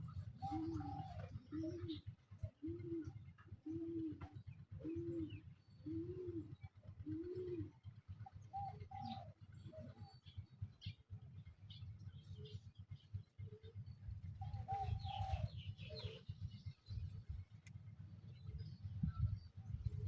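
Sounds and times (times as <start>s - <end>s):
dove cooing: 0.0s - 10.4s, 12.2s - 17.5s, 18.2s - 20.0s
high bird calls and chirps: 0.0s - 20.0s
steady low rumble: 0.0s - 20.0s.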